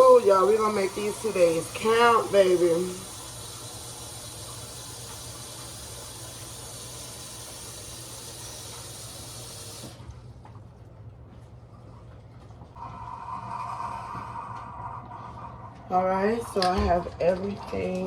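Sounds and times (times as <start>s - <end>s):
water running from a tap: 0.0s - 10.0s.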